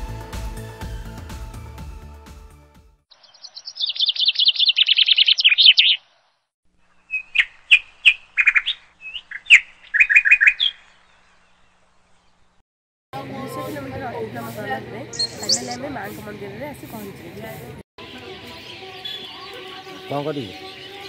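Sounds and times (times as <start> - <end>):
birdsong chirps and whistles: 3.1 - 12.6, 15.1 - 15.8, 18.1 - 21.0.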